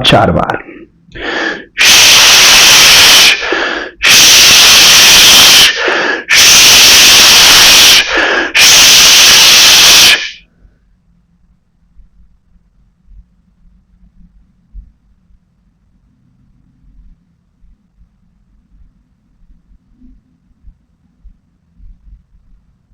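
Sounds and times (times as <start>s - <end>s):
quiet in-breath: 0.6s - 1.8s, 3.4s - 4.0s, 5.8s - 6.3s, 8.1s - 8.6s
person exhaling forcefully: 1.2s - 4.7s, 5.6s - 6.6s, 7.6s - 10.4s.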